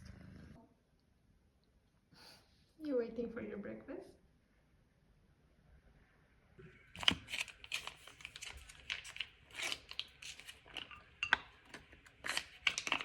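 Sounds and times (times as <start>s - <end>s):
packaging crinkling: 6.9s - 13.0s.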